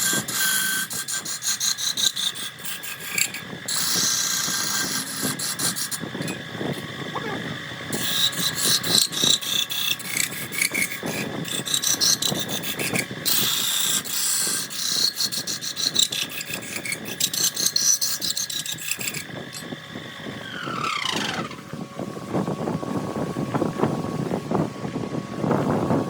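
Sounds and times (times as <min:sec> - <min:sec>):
turning tool scraping spinning wood: 0:00.0 - 0:22.5
lathe whine: 0:00.0 - 0:26.0.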